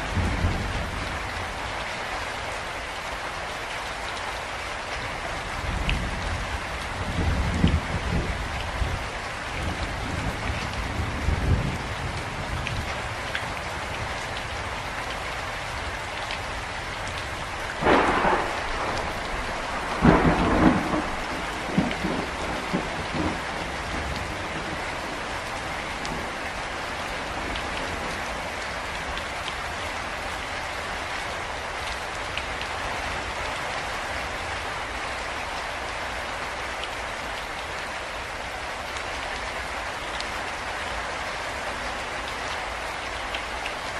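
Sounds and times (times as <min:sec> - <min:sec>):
heavy rain falling: 0:00.0 - 0:43.9
thunder rumbling and cracking: 0:05.6 - 0:09.0, 0:17.4 - 0:28.3.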